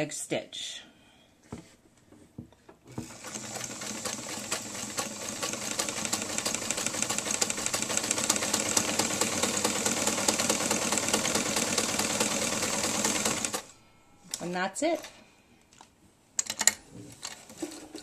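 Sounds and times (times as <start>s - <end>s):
sewing machine motor humming: 2.9s - 13.7s.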